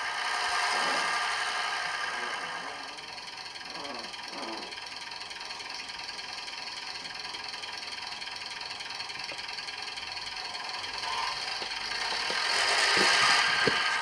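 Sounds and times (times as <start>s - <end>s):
diesel engine idling through small speaker: 0.0s - 14.0s.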